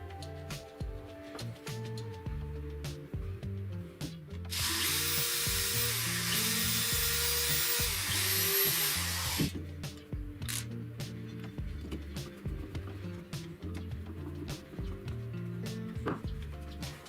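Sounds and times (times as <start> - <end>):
background music: 0.0 - 17.0
handheld power tool running: 4.5 - 9.6.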